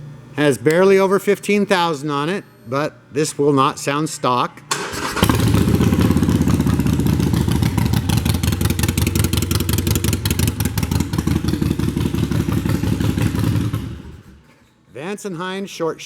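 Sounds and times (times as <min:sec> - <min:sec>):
motorcycle engine idling: 0:05.1 - 0:14.4.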